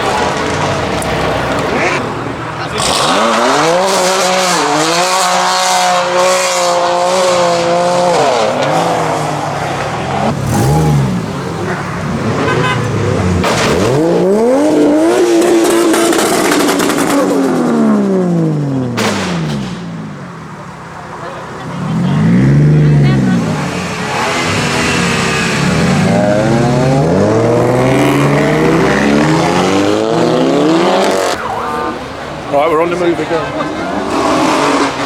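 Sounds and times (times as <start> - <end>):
sharp exhaust cracks: 0.0 - 14.2
car engines revving: 0.0 - 35.0.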